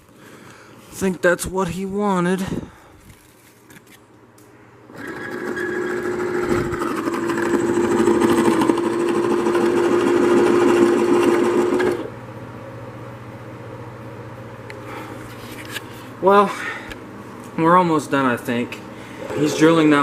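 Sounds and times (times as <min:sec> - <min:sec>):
electric drill whining: 0:05.0 - 0:12.1.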